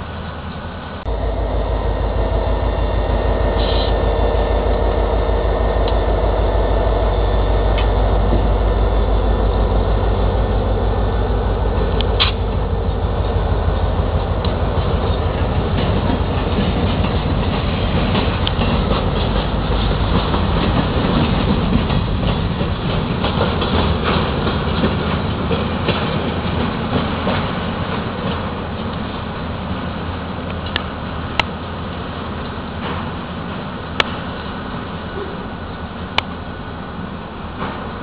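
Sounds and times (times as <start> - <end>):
diesel locomotive pulling away: 0.0 - 38.0
wheels clicking over rail joints: 11.5 - 36.5, 37.2 - 38.0.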